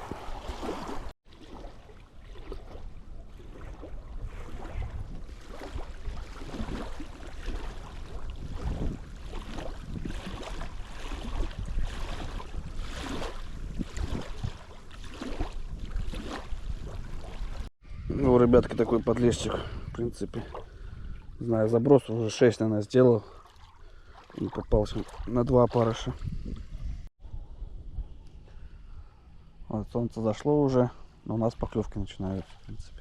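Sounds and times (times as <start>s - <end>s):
gusty wind buffeting microphone: 2.8s - 21.7s, 24.6s - 29.4s.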